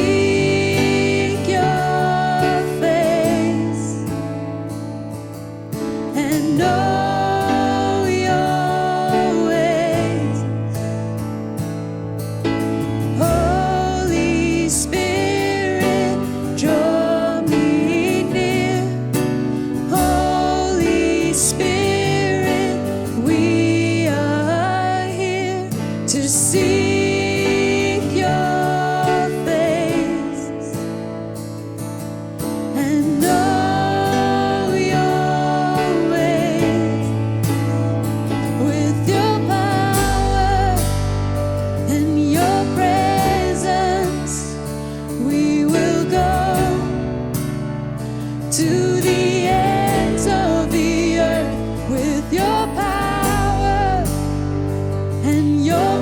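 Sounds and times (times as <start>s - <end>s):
person singing worship song: 0.0s - 4.5s, 5.9s - 10.9s, 13.0s - 31.0s, 32.7s - 56.0s.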